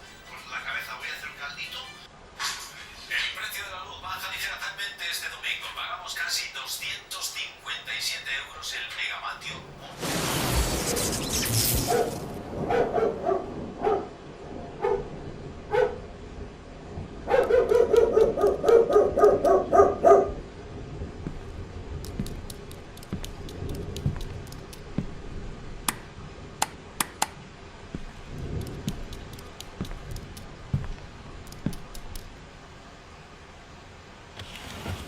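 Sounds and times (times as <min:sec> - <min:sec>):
dog barking: 0:11.9 - 0:12.1, 0:12.7 - 0:14.2, 0:14.8 - 0:15.1, 0:15.7 - 0:16.0, 0:17.3 - 0:20.4
sharp clicks: 0:17.4 - 0:19.6, 0:22.0 - 0:24.9, 0:28.4 - 0:30.5, 0:31.4 - 0:32.3
knocks: 0:22.0 - 0:25.2.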